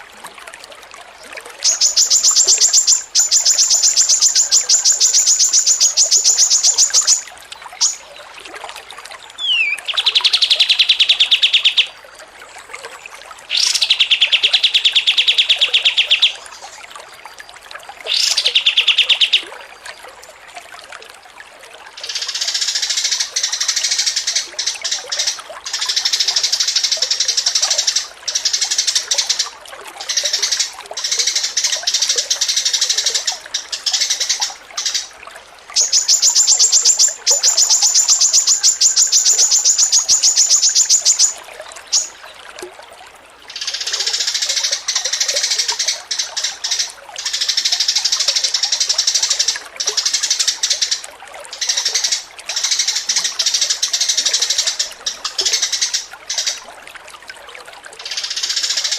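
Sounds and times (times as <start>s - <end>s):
songbirds chattering song: 1.6s - 8.2s, 9.3s - 12.0s, 13.5s - 16.9s, 18.1s - 19.5s, 22.0s - 42.4s
bird fast trill: 1.7s - 7.2s, 7.8s - 8.0s, 9.4s - 11.9s, 35.8s - 42.1s.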